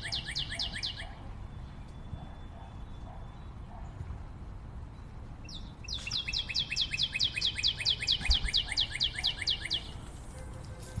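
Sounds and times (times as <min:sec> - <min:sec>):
songbird singing fast trill: 0:00.0 - 0:03.6, 0:05.0 - 0:10.0.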